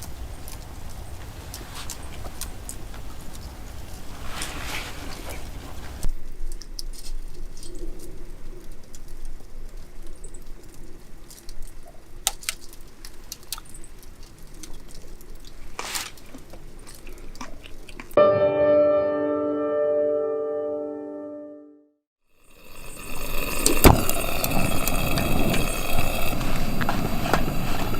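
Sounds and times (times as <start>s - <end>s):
campfire crackling and popping: 0.0s - 18.2s, 22.5s - 27.9s
sustained music chord: 18.2s - 22.0s.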